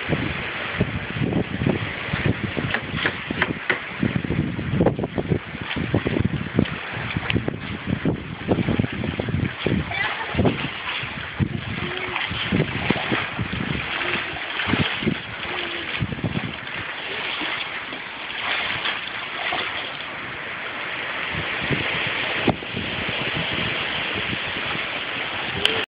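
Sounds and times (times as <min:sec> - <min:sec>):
low thumps on microphone: 0:00.8 - 0:13.9.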